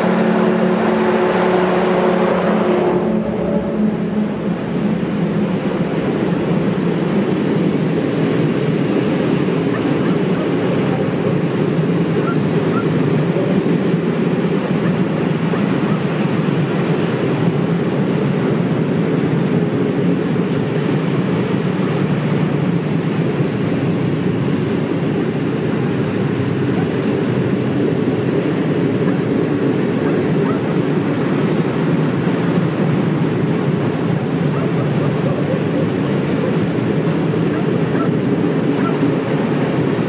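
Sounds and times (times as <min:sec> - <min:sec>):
freight train wheels rumbling on rails: 0:00.0 - 0:40.0.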